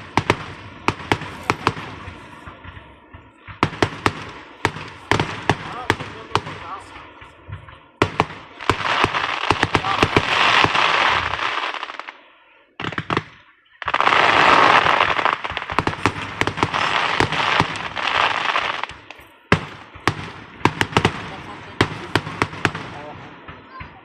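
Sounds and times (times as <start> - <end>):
fireworks hiss: 8.0 - 12.2, 12.8 - 23.3
fireworks popping cracks: 12.8 - 23.1.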